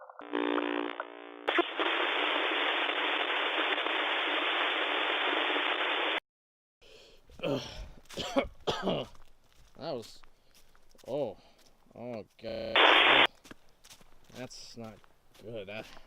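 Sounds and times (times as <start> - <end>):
static hiss: 0.2 - 6.2, 12.8 - 13.3
voice: 9.8 - 10.2, 11.0 - 11.4, 12.0 - 13.2, 14.3 - 15.9.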